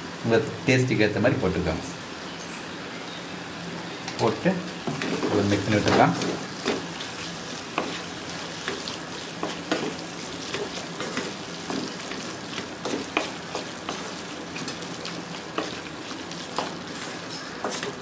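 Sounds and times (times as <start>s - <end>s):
meat sizzling in a frying pan: 0.0s - 18.0s
wooden spatula scraping a pan: 4.8s - 18.0s.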